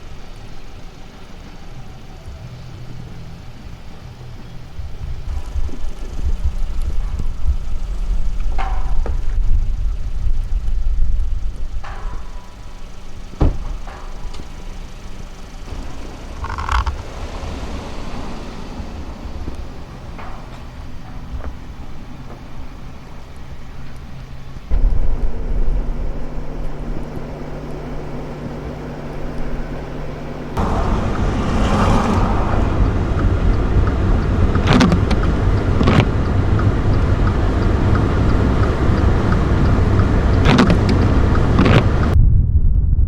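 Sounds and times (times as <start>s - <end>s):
car engine and tyres rumbling: 0.0s - 42.2s
sharp knocks: 13.4s - 14.6s.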